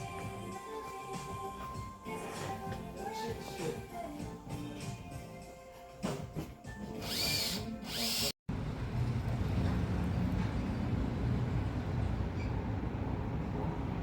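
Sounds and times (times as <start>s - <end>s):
background music: 0.0s - 8.2s.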